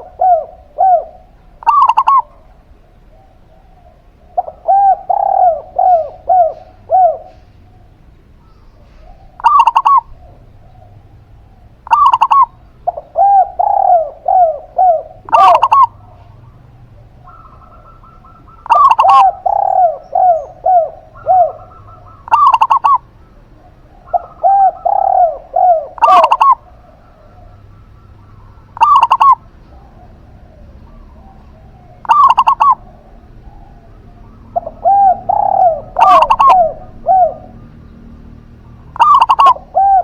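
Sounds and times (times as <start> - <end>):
dove cooing quick high notes: 0.0 - 2.4, 4.4 - 7.6, 8.8 - 10.2, 11.8 - 16.4, 17.2 - 23.0, 24.0 - 27.4, 28.1 - 37.6, 39.0 - 40.0
dove cooing low falling coos: 0.0 - 40.0.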